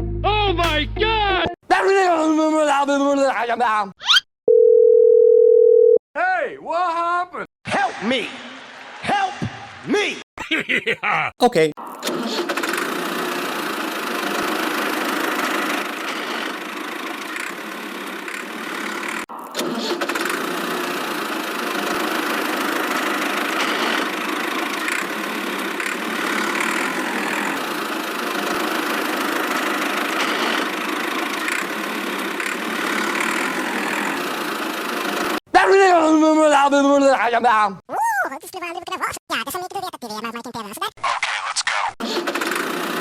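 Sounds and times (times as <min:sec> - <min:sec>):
small model vehicle motor: 0:12.4 - 0:35.4.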